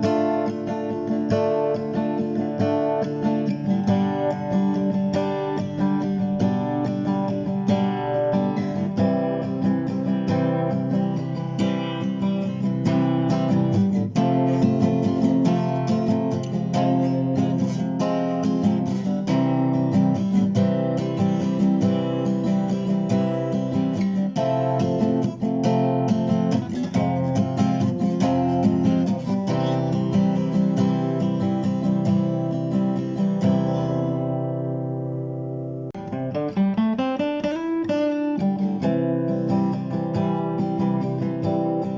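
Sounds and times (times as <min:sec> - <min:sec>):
strummed acoustic guitar music: 0:00.0 - 0:41.9.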